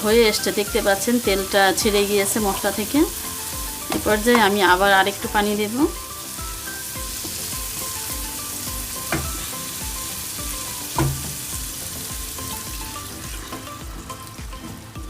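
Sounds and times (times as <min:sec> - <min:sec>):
masala sizzling in oil: 0:00.0 - 0:15.0
utensil knocking on pan: 0:03.9 - 0:04.6, 0:09.0 - 0:09.5, 0:10.9 - 0:11.5.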